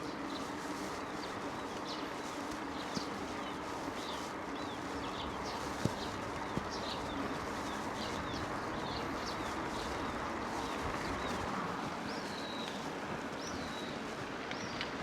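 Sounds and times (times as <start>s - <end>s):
bike rolling on trail: 0.0s - 15.0s
small birds chirping: 0.0s - 15.0s.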